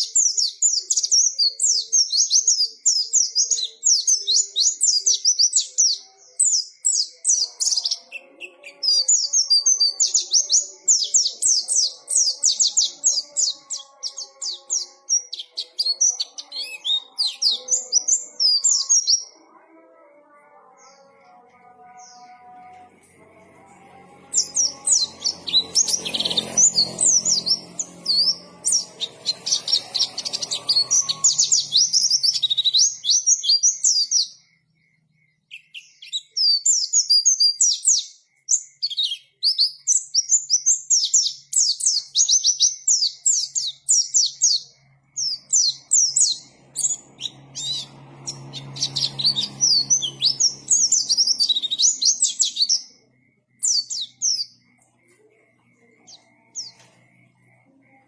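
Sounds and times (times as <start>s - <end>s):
bird chirping high sweet notes: 0.0s - 58.0s.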